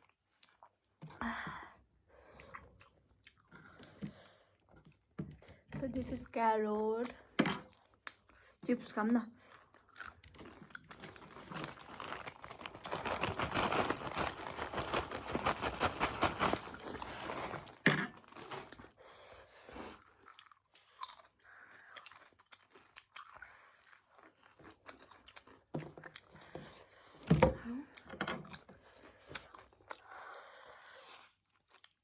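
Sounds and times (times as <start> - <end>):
crunching and chewing carrot chips: 9.4 - 27.2, 27.9 - 32.0.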